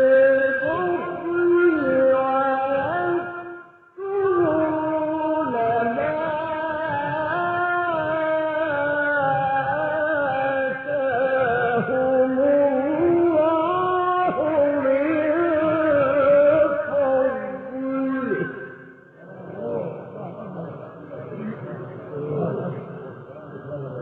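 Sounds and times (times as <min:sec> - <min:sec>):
man chanting melodic recitation: 0:00.0 - 0:24.0.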